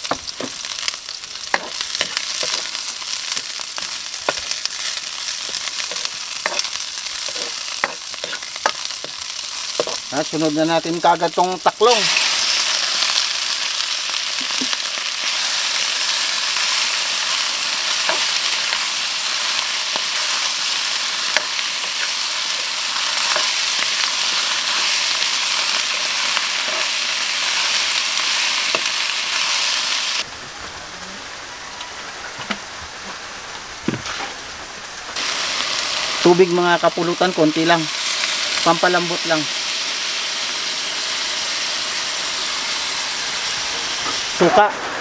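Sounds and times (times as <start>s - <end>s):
snails sizzling in a wok: 0.0s - 30.4s, 35.2s - 45.0s
spatula scraping a wok: 1.4s - 2.8s, 3.4s - 10.1s, 19.4s - 28.9s.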